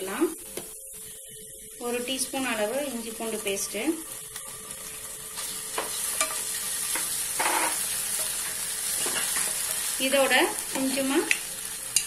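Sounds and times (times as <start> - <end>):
onions sizzling in hot oil: 0.0 - 12.0
wooden spatula scraping pan: 7.0 - 9.9.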